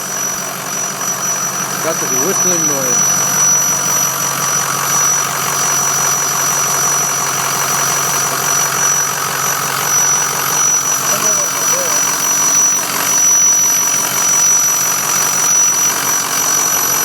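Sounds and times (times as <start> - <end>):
high-pitched whistle: 0.0 - 9.2, 9.8 - 17.0
diesel engine idling: 0.0 - 17.0.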